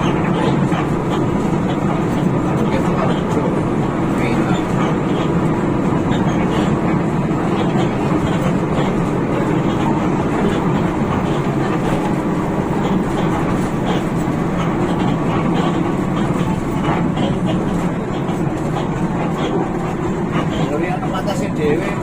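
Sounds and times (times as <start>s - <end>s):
bus engine and road drone: 0.0s - 22.0s.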